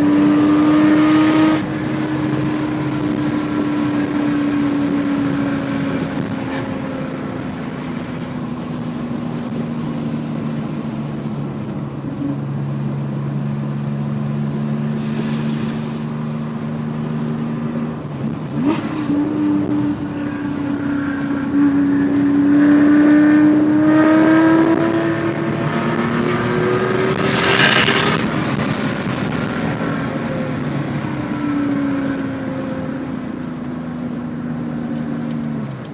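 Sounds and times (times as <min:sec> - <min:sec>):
car engine revving: 0:00.0 - 0:35.9
short loud rush: 0:14.9 - 0:16.2.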